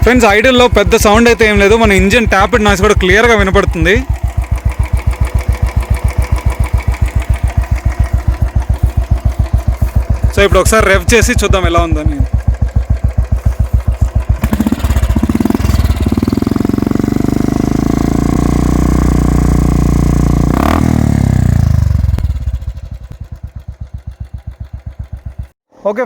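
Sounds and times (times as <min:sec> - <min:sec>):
motorcycle engine revving: 0:00.0 - 0:25.6.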